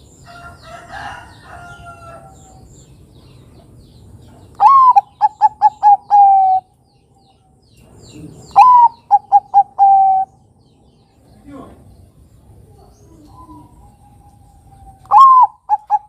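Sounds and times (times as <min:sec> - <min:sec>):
faint bird calls: 0:03.2 - 0:16.0
dove cooing: 0:04.6 - 0:06.7, 0:08.1 - 0:10.4, 0:12.5 - 0:16.0.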